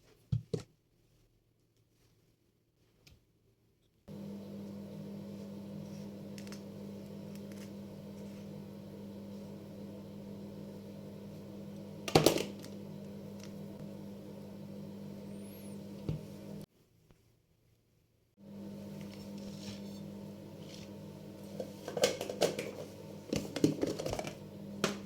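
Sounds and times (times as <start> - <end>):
appliance motor humming: 4.1 - 16.7, 18.4 - 25.0.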